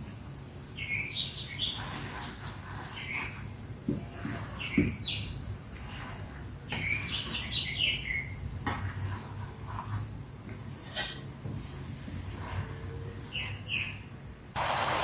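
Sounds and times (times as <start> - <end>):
birds chirping: 0.8 - 2.0, 6.7 - 8.4.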